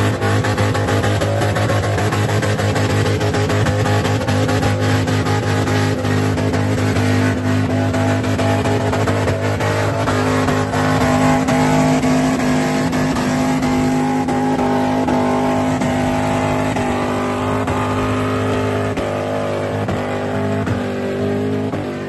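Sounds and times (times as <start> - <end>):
car engine at high revs: 0.0 - 22.0.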